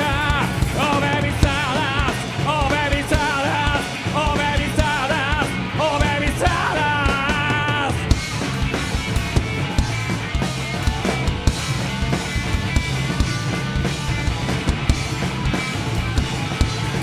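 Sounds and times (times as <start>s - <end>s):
rock band playing: 0.0s - 17.0s
drum strikes: 7.2s - 17.0s.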